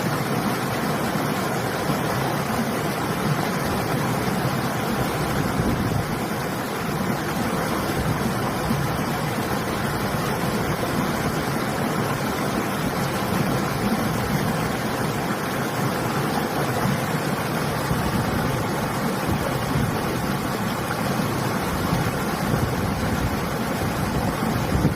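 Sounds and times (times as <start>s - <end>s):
river flowing: 0.0s - 24.9s
wind: 0.0s - 24.9s.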